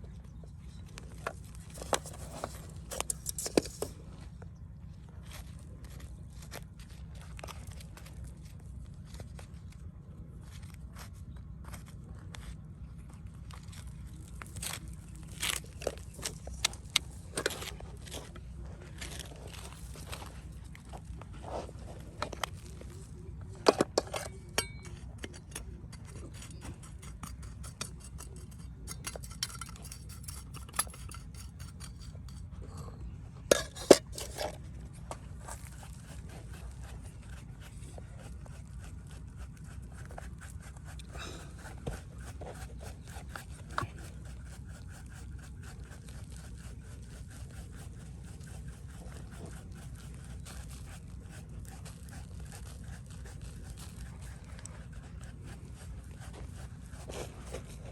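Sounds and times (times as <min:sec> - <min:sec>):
steady low rumble: 0:00.0 - 0:42.2
hard objects clinking and scraping: 0:01.1 - 0:04.0, 0:13.6 - 0:36.8.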